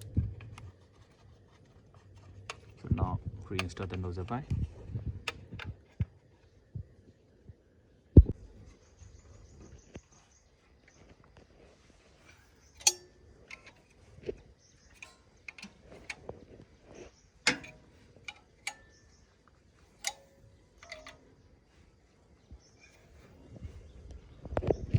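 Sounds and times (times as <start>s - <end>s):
spanner clinking on metal pipe: 12.3s - 14.0s, 14.8s - 16.2s, 17.5s - 19.2s, 20.0s - 21.2s.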